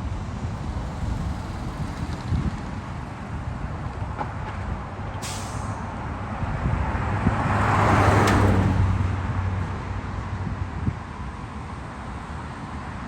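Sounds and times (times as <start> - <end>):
truck driving past: 0.0 - 3.6, 7.0 - 9.6
brief sharp hiss: 5.2 - 5.8.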